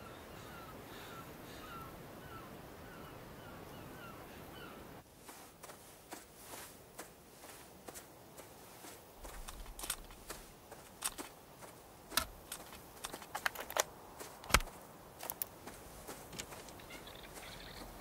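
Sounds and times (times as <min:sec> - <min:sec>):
wind: 0:00.0 - 0:18.0
headphones handled clicks and rustles: 0:09.2 - 0:18.0
bird calling short notes: 0:16.7 - 0:18.0.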